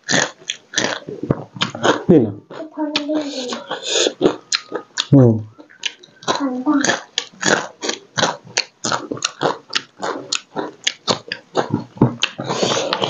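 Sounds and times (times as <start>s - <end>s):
wet chewing and crunching: 0.0s - 13.0s.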